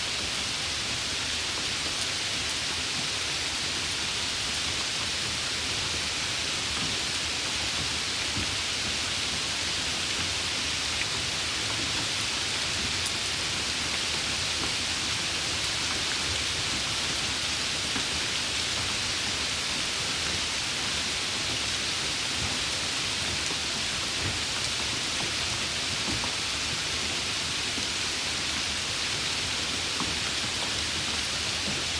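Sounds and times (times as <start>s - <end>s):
steady rain hiss: 0.0s - 31.9s.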